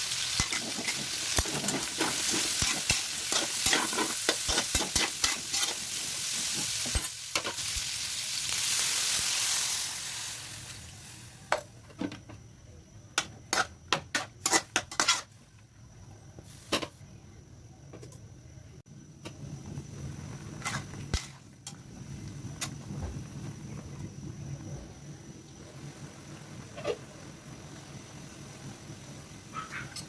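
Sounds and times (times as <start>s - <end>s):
meat sizzling in a frying pan: 0.0s - 11.5s
utensil scraping a pan: 0.4s - 7.7s, 13.5s - 15.4s.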